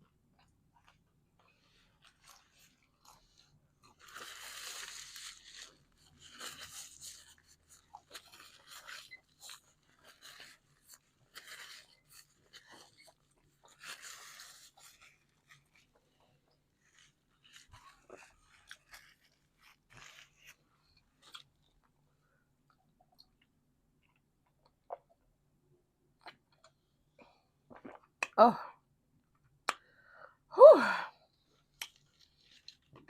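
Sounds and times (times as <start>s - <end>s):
crunchy crust chewing: 0.4s - 21.9s, 31.5s - 33.0s.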